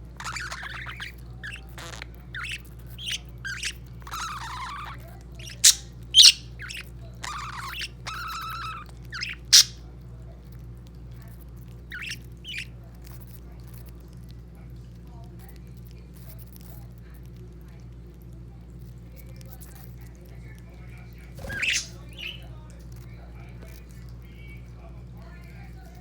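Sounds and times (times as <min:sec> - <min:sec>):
budgies chirping and chattering: 0:00.1 - 0:09.8, 0:11.8 - 0:12.8, 0:21.3 - 0:22.6
budgie squawks: 0:00.2 - 0:09.8, 0:11.9 - 0:12.7, 0:21.4 - 0:22.4.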